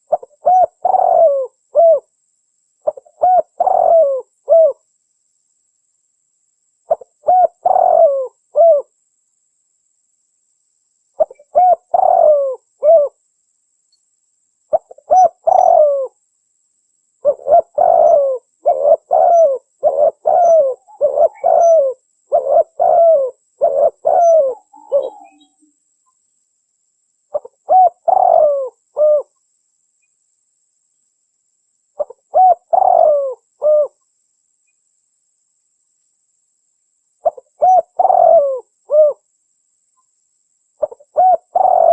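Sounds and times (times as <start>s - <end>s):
dove cooing: 0.0s - 2.1s, 2.8s - 4.8s, 6.9s - 8.9s, 11.2s - 13.2s, 14.7s - 16.2s, 17.2s - 25.6s, 27.3s - 29.3s, 32.0s - 34.0s, 37.2s - 39.2s, 40.8s - 41.9s.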